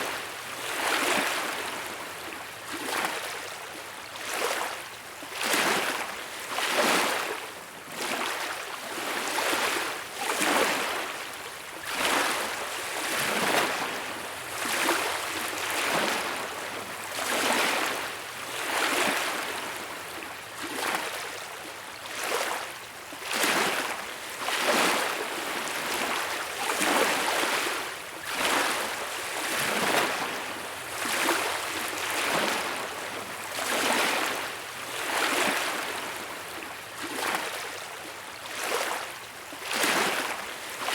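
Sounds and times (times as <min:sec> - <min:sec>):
small waves breaking on beach: 0:00.0 - 0:40.9.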